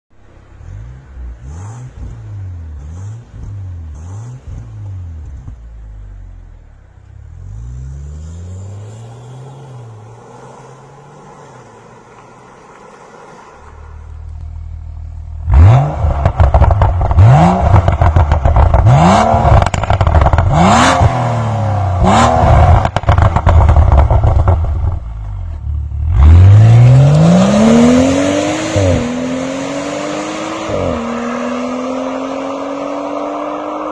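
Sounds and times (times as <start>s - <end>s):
car engine revving: 0.2s - 33.9s
exhaust crackling pops: 13.6s - 21.3s, 22.0s - 25.8s
car accelerating hard: 15.3s - 33.9s.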